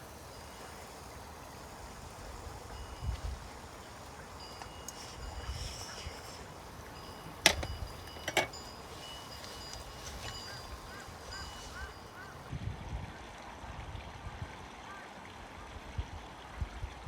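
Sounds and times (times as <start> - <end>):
faint bird calls: 0.0 - 12.5
outdoor background noise: 0.0 - 17.0.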